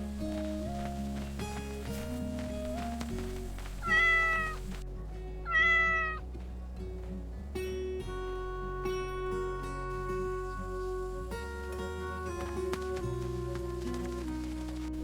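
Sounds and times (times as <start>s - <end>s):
soft background music: 0.0s - 15.0s
cat meowing: 3.8s - 4.6s, 5.5s - 6.2s.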